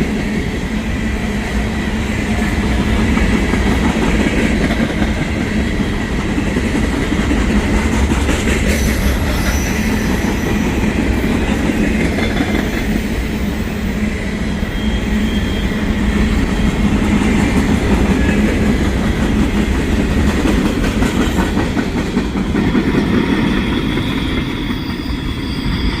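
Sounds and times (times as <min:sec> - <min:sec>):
train wheels rumbling on rails: 0:00.0 - 0:26.0
high wheel squeals: 0:08.8 - 0:10.8, 0:14.6 - 0:16.0, 0:24.4 - 0:26.0.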